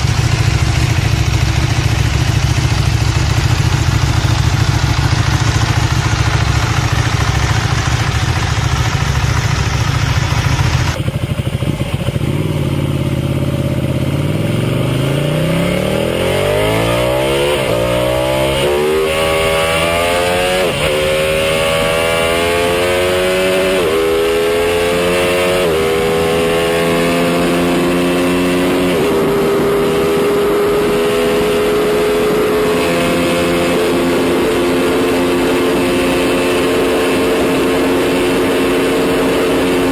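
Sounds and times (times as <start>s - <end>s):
motorcycle engine accelerating: 0.0s - 39.9s
rough noisy engine: 0.0s - 39.9s.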